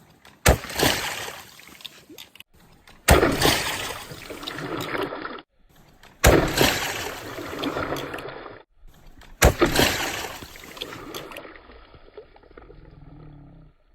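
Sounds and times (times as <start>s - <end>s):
sharp water splashes: 0.2s - 12.6s
running and trickling water: 9.9s - 13.1s.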